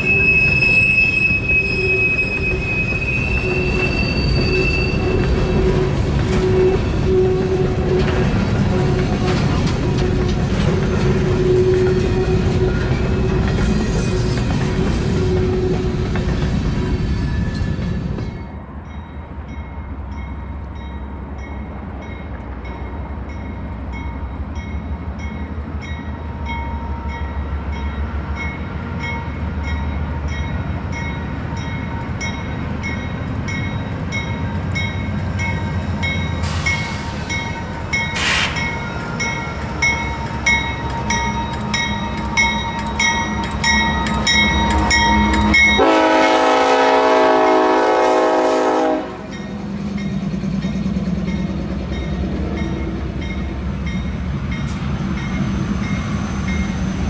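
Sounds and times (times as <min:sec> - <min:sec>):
locomotive horn blowing: 0:00.0 - 0:10.4, 0:44.6 - 0:49.4
train rumbling by: 0:00.0 - 0:57.0.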